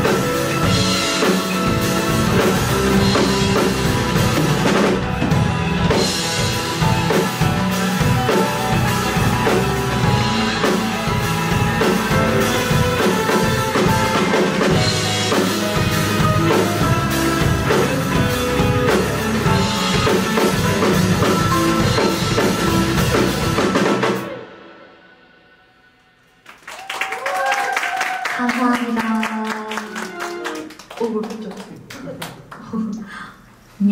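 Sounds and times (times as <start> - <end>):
drum kit playing: 0.0 - 24.9
live band music: 0.0 - 25.0, 28.6 - 30.9.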